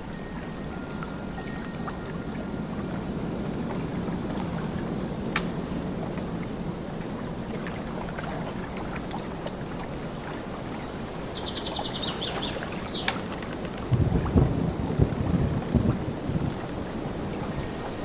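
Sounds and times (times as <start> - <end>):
lake water: 0.0 - 18.0
steady wind: 0.0 - 18.0
low rumble of thunder: 13.7 - 18.0.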